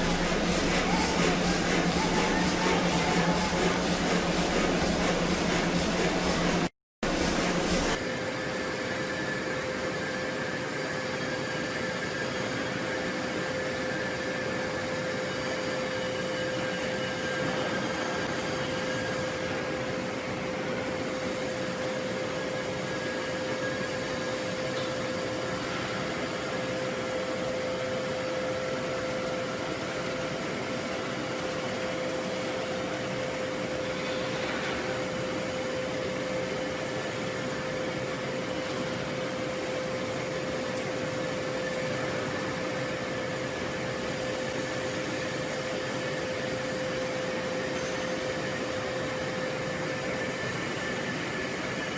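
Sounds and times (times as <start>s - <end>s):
forging machinery noise: 0.0s - 8.0s
mid-pitched hum: 0.0s - 8.1s.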